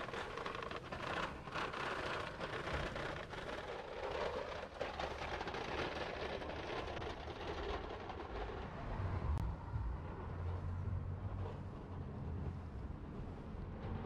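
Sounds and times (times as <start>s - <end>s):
metal wagon rolling on concrete: 0.0s - 8.7s.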